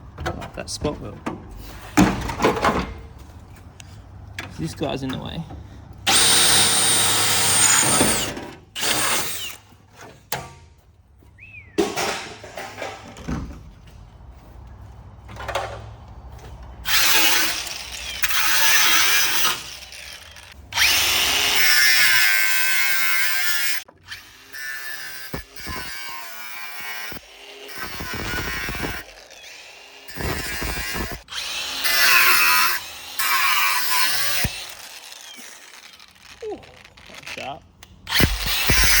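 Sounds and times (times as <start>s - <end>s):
knocks and metal clatter: 0.0s - 3.6s, 11.7s - 14.6s, 15.2s - 18.4s
power tool cutting metal: 6.1s - 9.6s, 16.8s - 39.0s.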